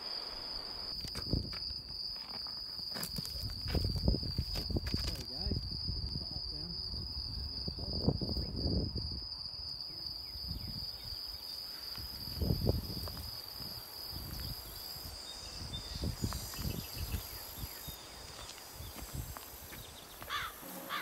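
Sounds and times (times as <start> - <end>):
wind rumbling on microphone: 0.9 - 1.8, 3.1 - 20.6
steady high whine: 20.2 - 21.0.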